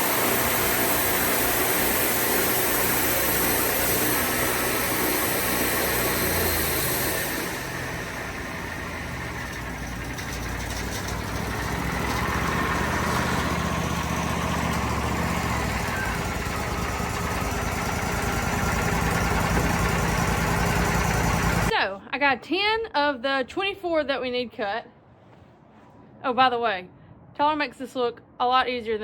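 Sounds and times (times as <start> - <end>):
sawmill engine running: 0.0 - 21.7.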